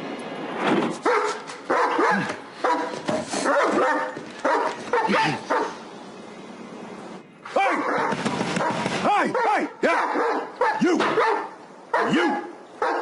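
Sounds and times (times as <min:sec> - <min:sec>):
dog barking: 0:01.0 - 0:05.8, 0:07.6 - 0:13.0.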